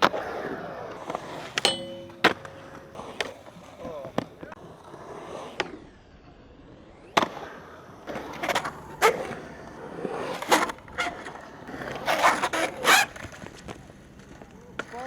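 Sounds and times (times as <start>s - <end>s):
skateboard clacking on ground: 0.0s - 4.6s, 10.3s - 15.0s
skateboard rolling on concrete: 0.0s - 15.0s
skateboard grinding scrapes: 7.4s - 13.8s.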